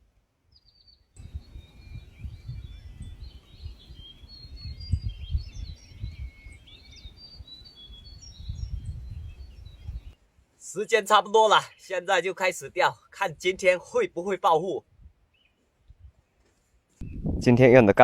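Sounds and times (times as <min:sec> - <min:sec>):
small birds chirping: 0:00.5 - 0:17.2
wind buffeting microphone: 0:01.2 - 0:10.2, 0:14.8 - 0:15.2, 0:15.8 - 0:16.2, 0:17.0 - 0:18.0.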